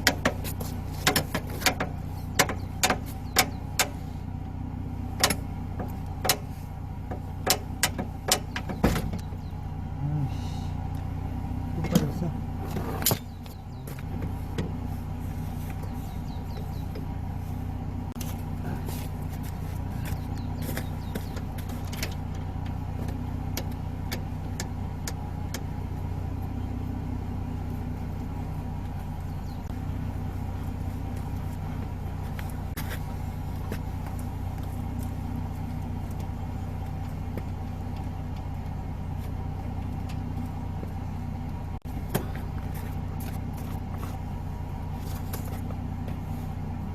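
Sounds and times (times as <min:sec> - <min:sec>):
sharp clicks and knocks: 0:00.0 - 0:04.0, 0:05.2 - 0:06.5, 0:07.1 - 0:09.4, 0:20.0 - 0:25.7
pickup engine idling: 0:00.0 - 0:46.9.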